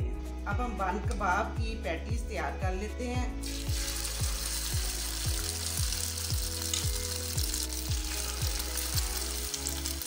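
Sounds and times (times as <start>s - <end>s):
patty mixture sizzling in oil: 3.4s - 10.0s.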